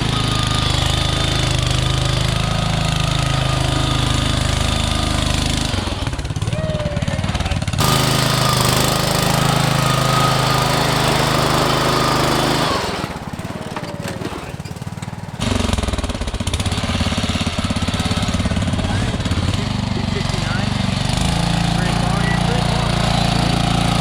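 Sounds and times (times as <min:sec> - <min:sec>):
lawn tractor engine running hard: 0:00.0 - 0:24.0.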